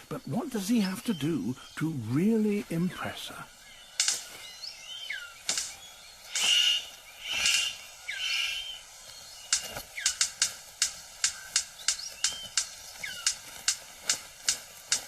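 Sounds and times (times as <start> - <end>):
forest birds chirping: 0.0 - 15.0
harsh rasping bird calls: 0.0 - 15.0
sharp bird clicks: 3.5 - 15.0.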